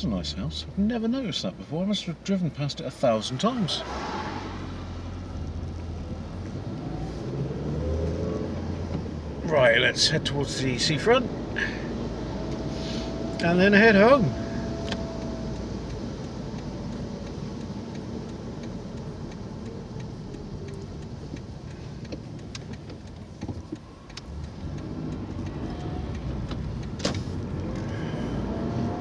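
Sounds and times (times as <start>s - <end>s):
car engine and tyre rumble: 0.0s - 29.0s.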